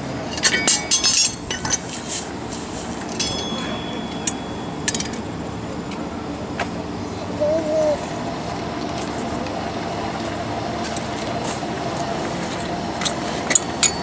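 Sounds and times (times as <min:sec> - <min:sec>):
small metal pieces clinking: 0:00.3 - 0:05.3
light strike on ringing metal: 0:03.1 - 0:05.5.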